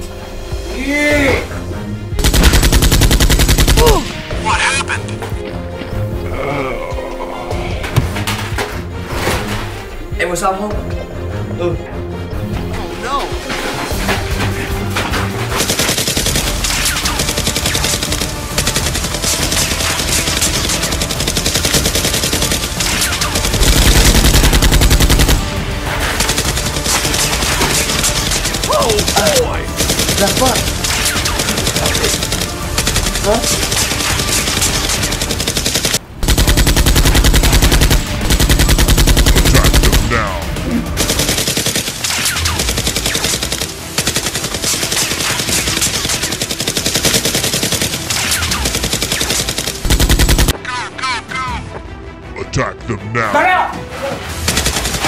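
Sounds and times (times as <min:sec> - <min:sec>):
rapid automatic gunfire: 0:02.2 - 0:04.0, 0:15.5 - 0:40.4, 0:41.0 - 0:50.6, 0:54.5 - 0:55.0
machine-gun fire: 0:02.2 - 0:04.1, 0:15.5 - 0:40.4, 0:41.0 - 0:50.6, 0:54.4 - 0:55.0.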